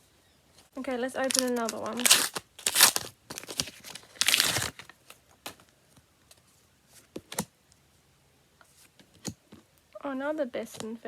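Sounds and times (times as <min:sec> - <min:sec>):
wrapper crinkling: 0:01.1 - 0:05.3.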